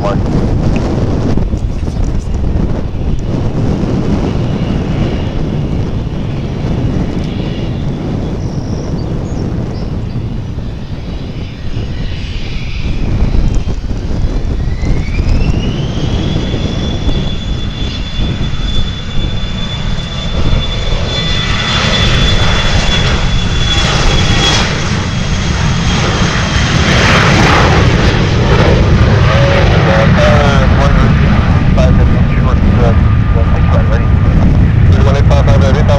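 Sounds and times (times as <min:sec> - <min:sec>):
heavy low rumble: 0:00.0 - 0:35.9
jet engines whining: 0:00.0 - 0:35.9.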